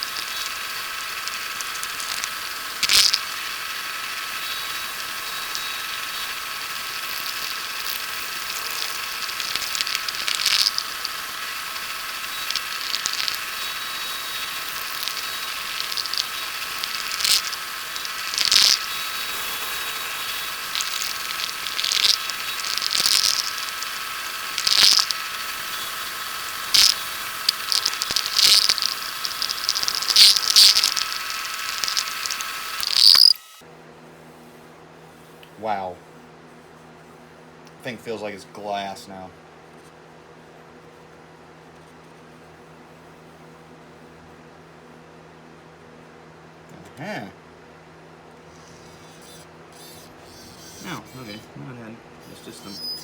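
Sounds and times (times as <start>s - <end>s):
sandpaper scratchy hisses: 0.0s - 33.4s
wood lathe humming: 0.0s - 33.5s.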